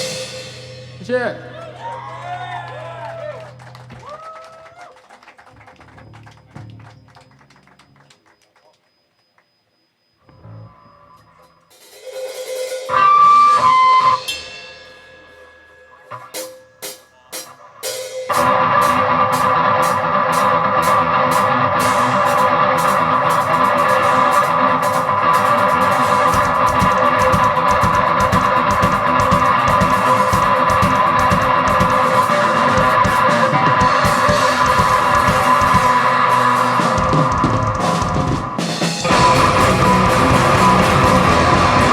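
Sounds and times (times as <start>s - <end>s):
rock band playing loudly: 0.0s - 4.0s, 12.4s - 15.0s, 16.1s - 41.9s
held electric guitar notes: 18.3s - 41.9s
sharp drum hits: 23.6s - 41.9s.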